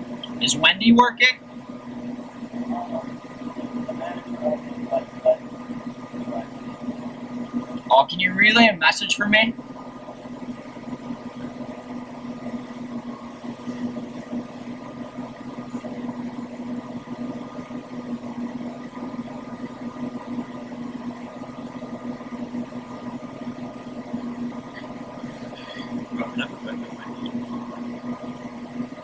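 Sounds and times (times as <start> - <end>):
vehicle engine idling: 0.0 - 29.0.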